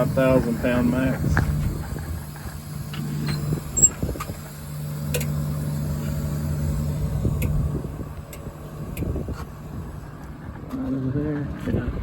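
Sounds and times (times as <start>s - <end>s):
diesel engine idling: 0.0s - 11.4s.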